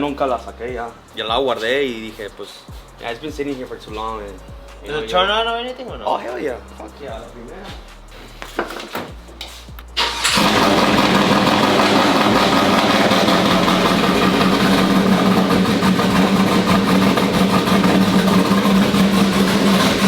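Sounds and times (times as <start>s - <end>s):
truck engine idling: 9.9s - 20.0s.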